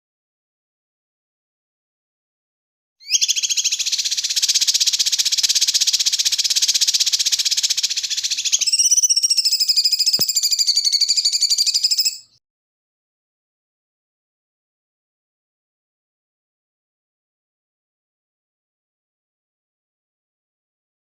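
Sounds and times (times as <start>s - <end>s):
songbird trilling: 3.0s - 12.4s.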